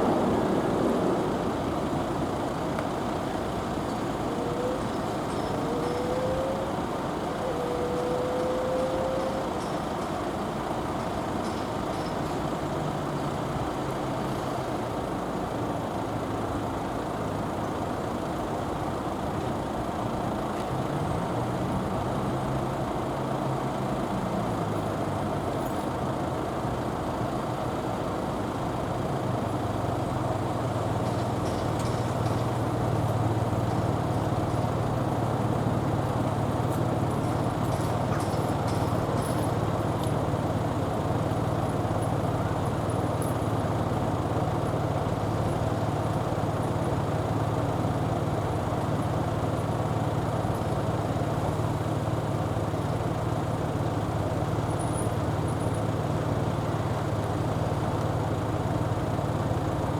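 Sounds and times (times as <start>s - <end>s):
heavy engine: 0.0s - 59.9s
heavy road traffic: 0.0s - 59.9s
thin squeal: 4.3s - 10.0s.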